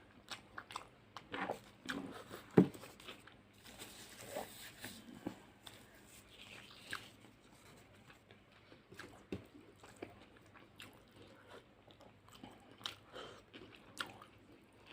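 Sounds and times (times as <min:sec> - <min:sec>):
wet chewing and lip smacks: 0:07.9 - 0:14.9.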